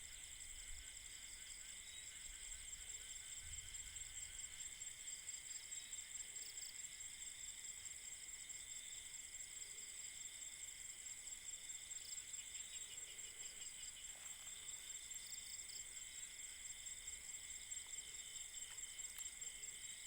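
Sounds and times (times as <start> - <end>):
crickets trilling: 11.6 - 20.0.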